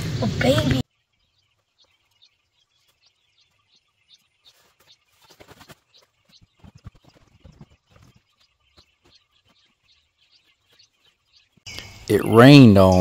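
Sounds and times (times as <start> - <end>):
small birds chirping: 0.0 - 13.0
footsteps in dry leaves: 4.2 - 8.3.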